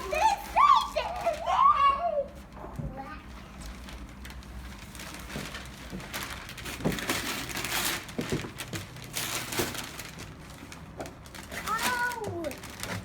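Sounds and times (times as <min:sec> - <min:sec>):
packaging crinkling and rustling: 0:00.0 - 0:02.6, 0:03.5 - 0:13.0.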